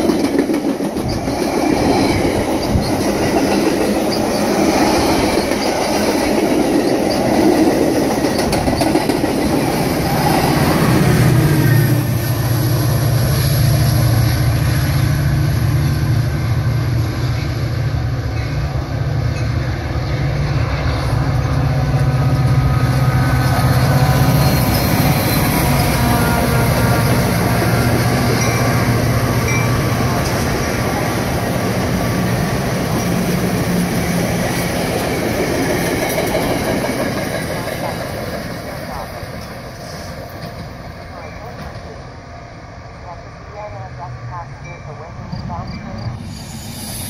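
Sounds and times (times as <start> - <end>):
diesel locomotive engine drone: 0.0 - 47.0
train cars rumbling and clattering: 0.0 - 47.0.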